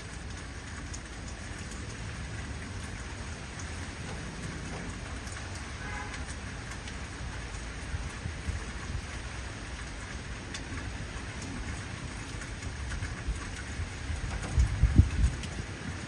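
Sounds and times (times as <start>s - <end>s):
heavy rain falling: 0.0s - 16.0s
raindrops ticking: 0.0s - 16.0s
low thunder rumble: 13.1s - 16.0s.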